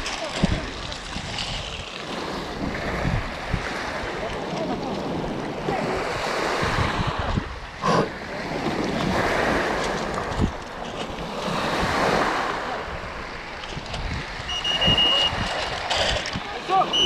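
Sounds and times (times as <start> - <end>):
sea water splashing: 0.0 - 17.0
wind buffeting microphone: 0.0 - 17.0.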